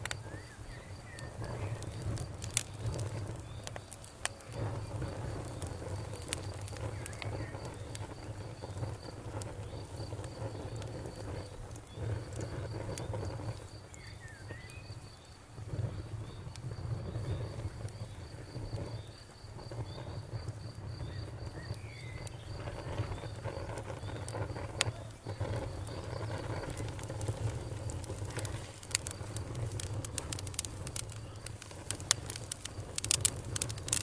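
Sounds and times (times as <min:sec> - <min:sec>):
campfire crackling and popping: 0:00.0 - 0:34.0
crickets chirping: 0:00.0 - 0:34.0.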